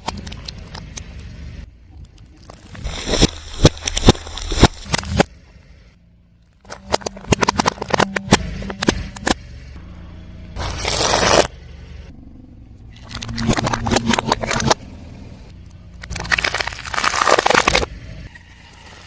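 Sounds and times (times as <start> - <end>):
tyre crushing brittle objects: 2.2 - 5.3, 6.6 - 9.4, 13.0 - 14.8, 16.0 - 17.9
car engine running: 5.3 - 19.0.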